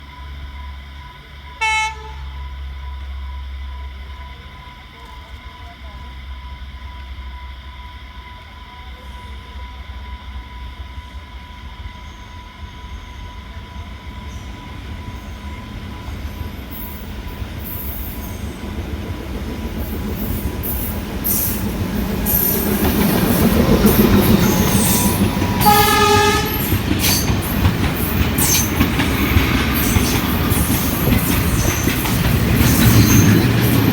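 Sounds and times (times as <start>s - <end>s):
diesel locomotive engine rumble: 0.0s - 33.9s
train horn: 1.4s - 2.6s, 24.4s - 27.3s
train wheels clacking: 14.2s - 33.9s.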